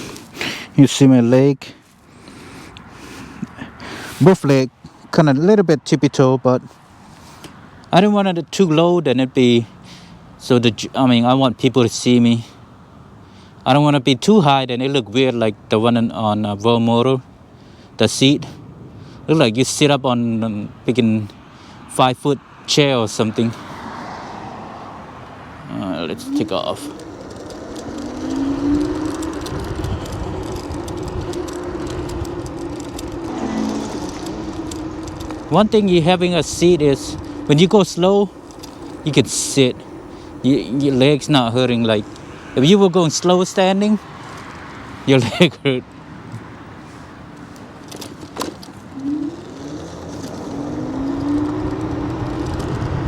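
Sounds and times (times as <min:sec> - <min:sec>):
road and wind rumble: 0:00.0 - 0:53.0
electric scooter motor whining: 0:23.9 - 0:45.1, 0:46.8 - 0:53.0
light rattles: 0:25.6 - 0:44.8, 0:47.4 - 0:53.0.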